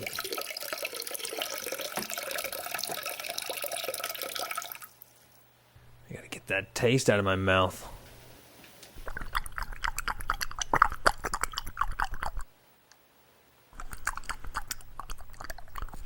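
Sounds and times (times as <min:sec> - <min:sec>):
cat chewing food: 0:09.0 - 0:12.5, 0:13.8 - 0:16.0.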